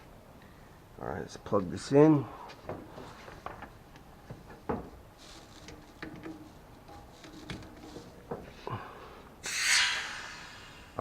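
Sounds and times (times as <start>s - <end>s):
air hose fitting clicks and knocks: 4.3s - 8.6s.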